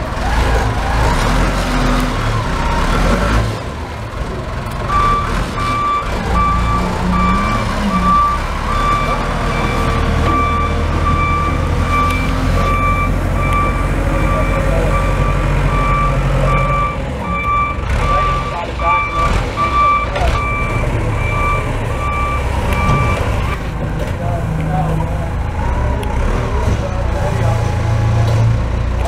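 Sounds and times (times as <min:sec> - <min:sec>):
reversing alarm beeping: 0:04.9 - 0:23.6.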